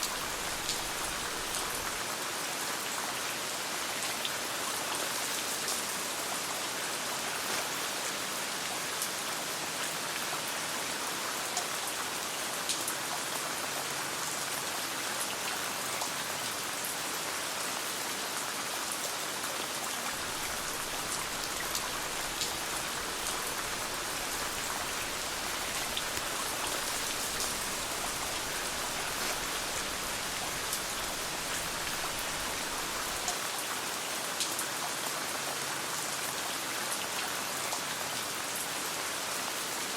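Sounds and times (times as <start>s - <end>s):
rain pattering: 0.0s - 17.0s, 19.8s - 35.0s
campfire crackling: 20.1s - 33.3s.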